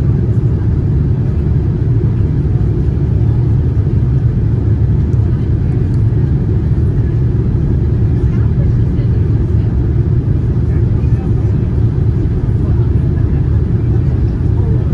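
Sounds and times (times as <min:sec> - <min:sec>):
airliner cabin engine rumble: 0:00.0 - 0:14.9.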